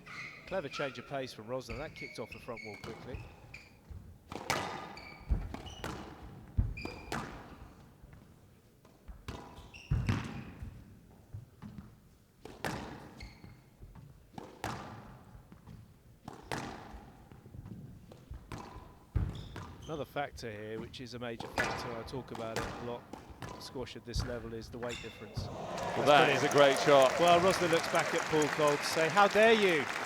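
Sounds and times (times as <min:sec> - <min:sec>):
shoes squeaking on court floor: 0:00.0 - 0:01.1, 0:01.7 - 0:04.1, 0:13.1 - 0:13.8, 0:24.2 - 0:30.0.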